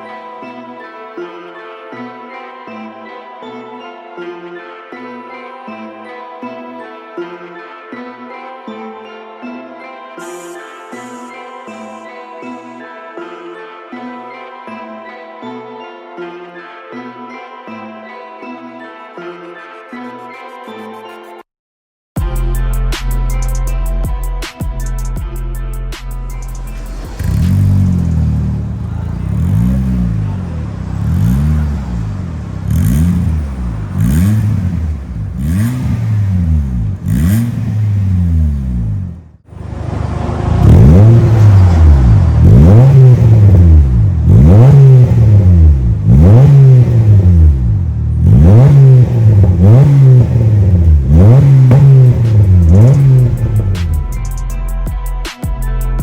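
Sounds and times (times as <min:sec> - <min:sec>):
car engine revving: 0:26.1 - 0:54.2.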